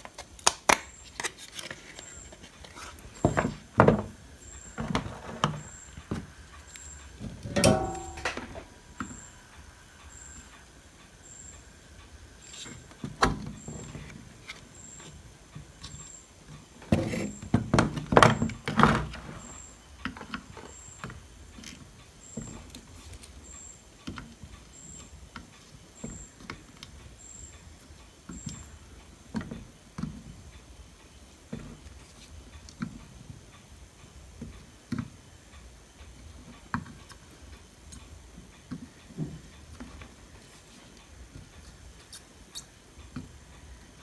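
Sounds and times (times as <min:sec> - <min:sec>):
tools knocking and clattering: 0:03.2 - 0:06.3, 0:07.2 - 0:09.2, 0:16.8 - 0:19.5.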